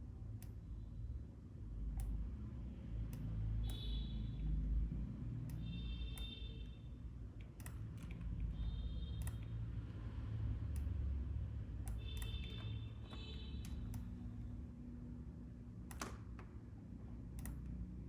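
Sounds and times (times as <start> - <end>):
steady low hum: 0.0 - 18.0
mouse and keyboard clicks: 17.3 - 17.8.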